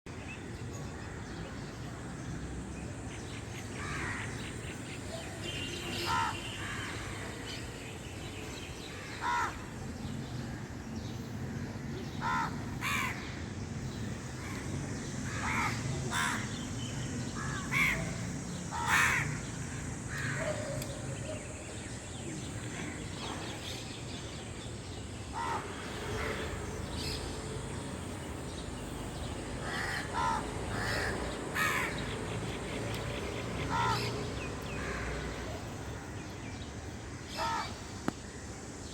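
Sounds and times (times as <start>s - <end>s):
steady background hiss: 0.1s - 38.9s
birds calling: 12.0s - 38.9s.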